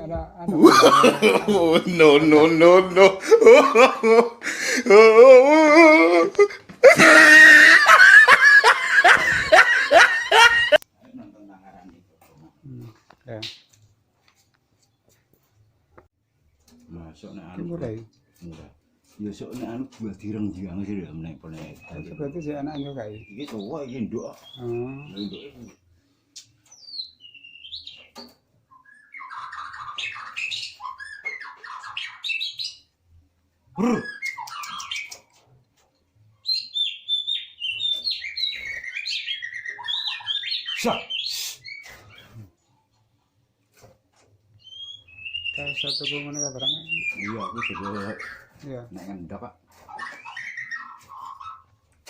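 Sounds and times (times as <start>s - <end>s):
people laughing: 0.5s - 10.8s
songbird chirps and whistles: 21.5s - 25.8s, 26.4s - 33.0s, 33.8s - 35.4s, 36.4s - 42.4s, 44.6s - 48.7s, 49.9s - 51.8s.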